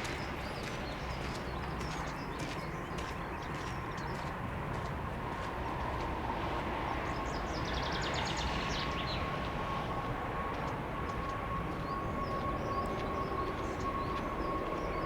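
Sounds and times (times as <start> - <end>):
jet engines rumbling and whining: 4.5 - 15.0.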